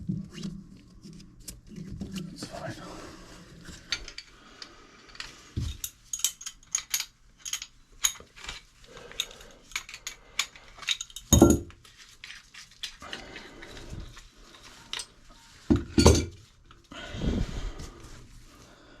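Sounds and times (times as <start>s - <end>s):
hard objects clinking: 5.0s - 11.8s.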